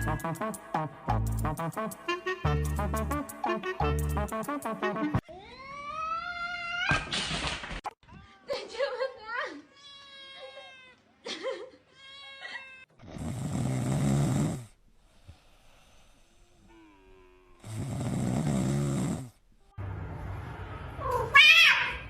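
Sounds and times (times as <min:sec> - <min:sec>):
loud snores: 0:13.0 - 0:14.8, 0:16.2 - 0:19.4.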